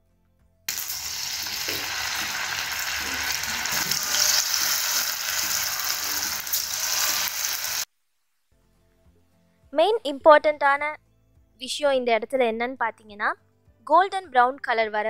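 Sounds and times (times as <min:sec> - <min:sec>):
deep-frying in hot oil: 0:00.7 - 0:07.9.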